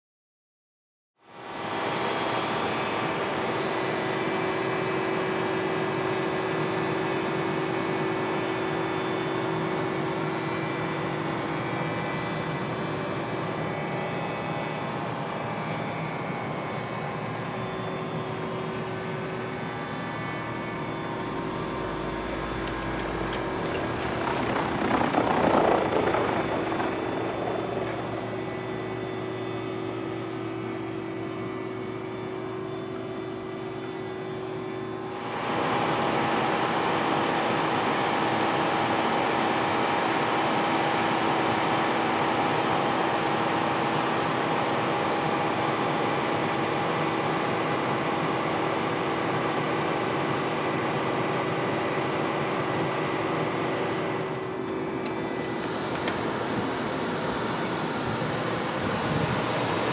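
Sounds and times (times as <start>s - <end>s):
air conditioning compressor whirring: 18.4s - 29.4s, 35.1s - 59.9s
rushing air: 21.7s - 28.8s.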